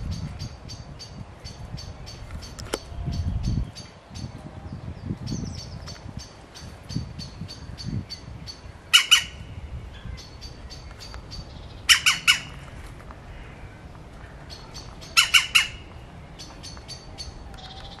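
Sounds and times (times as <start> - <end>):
bird squawking harshly: 8.9 - 9.5, 11.9 - 12.6, 15.1 - 15.9.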